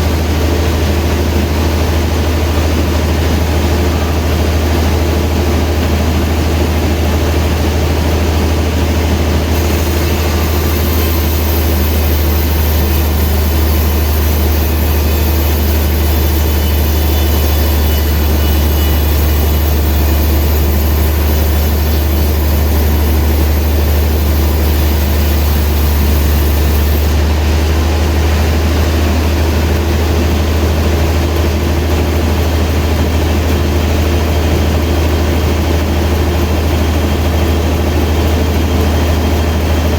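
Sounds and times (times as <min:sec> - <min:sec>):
sawmill machinery drone: 0:00.0 - 0:39.9
high hiss: 0:09.6 - 0:27.3.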